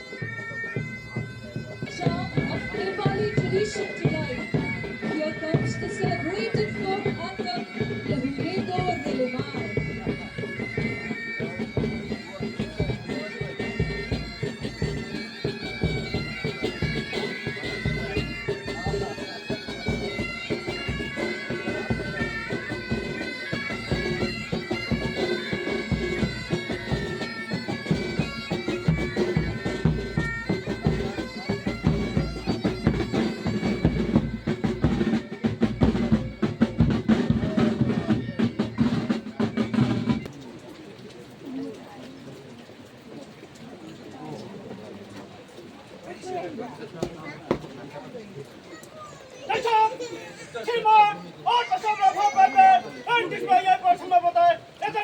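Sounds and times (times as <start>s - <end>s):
bagpipes playing a melody: 0.0s - 40.4s
drums beating: 0.0s - 40.7s, 46.1s - 47.9s, 49.4s - 55.0s.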